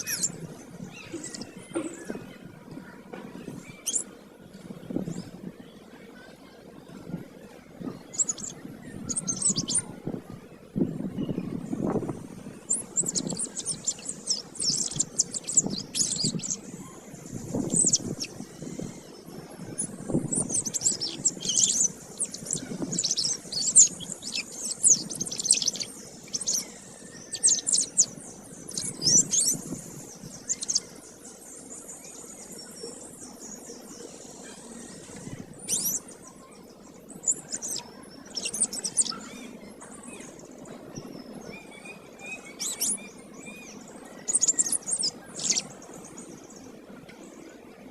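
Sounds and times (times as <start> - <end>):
canary singing in high trills: 0.0 - 1.6, 3.6 - 4.1, 8.1 - 10.0, 12.5 - 31.0, 34.5 - 36.3, 37.0 - 39.8, 41.5 - 45.8.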